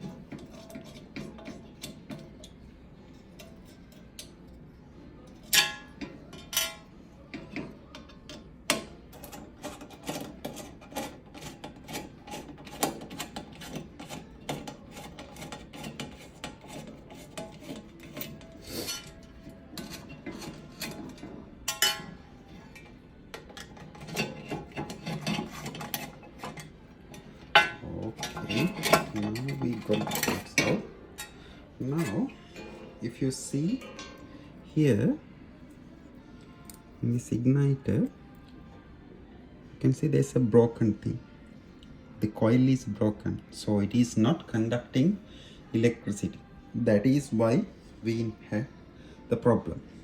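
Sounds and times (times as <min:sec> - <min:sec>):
metal clinking and scraping: 0:00.0 - 0:04.6, 0:05.2 - 0:34.4.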